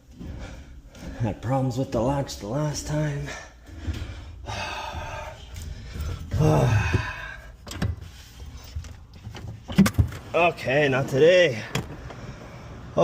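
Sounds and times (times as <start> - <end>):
heavy breathing: 0.0 - 1.6, 3.0 - 8.7, 12.0 - 13.0.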